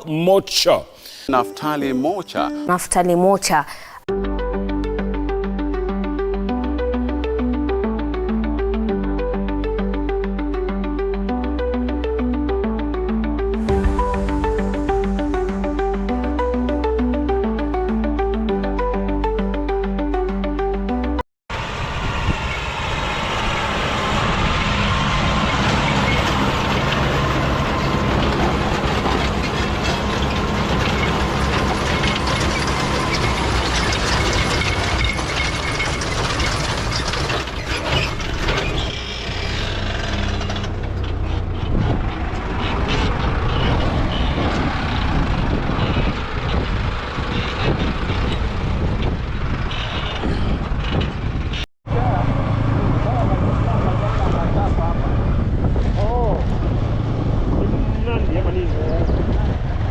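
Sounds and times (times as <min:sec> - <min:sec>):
harvester engine running: 0:04.4 - 0:57.5
mechanical clatter: 0:26.0 - 0:43.3.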